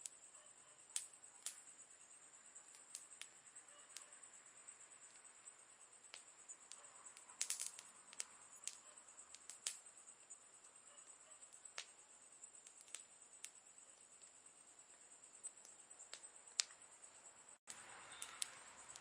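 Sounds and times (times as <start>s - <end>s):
campfire crackling: 0.0s - 19.0s.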